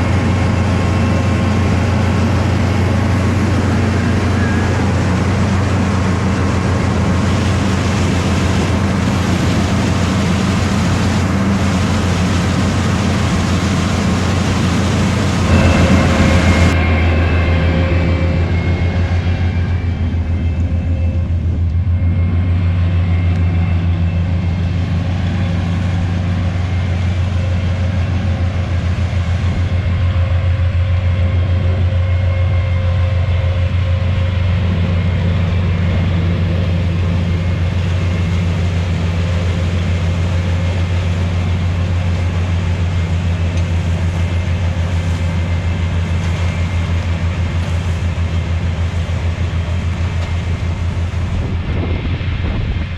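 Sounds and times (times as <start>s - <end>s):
low engine drone: 0.0s - 52.9s
machinery tones: 2.8s - 24.6s.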